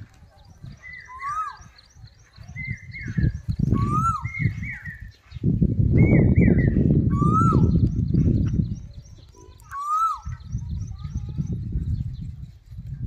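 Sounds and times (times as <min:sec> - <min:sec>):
high bird chirps: 0:00.4 - 0:12.4
bird whistling rising and falling: 0:00.8 - 0:01.8, 0:02.6 - 0:05.2, 0:06.0 - 0:08.0, 0:09.7 - 0:10.5.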